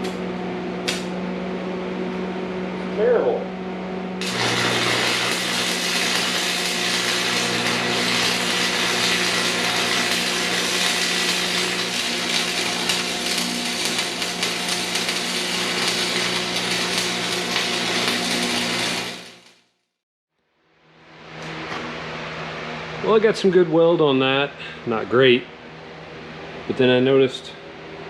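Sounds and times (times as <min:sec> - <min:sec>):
electrical hum: 0:00.0 - 0:19.3
crackling welding arc: 0:04.2 - 0:19.5.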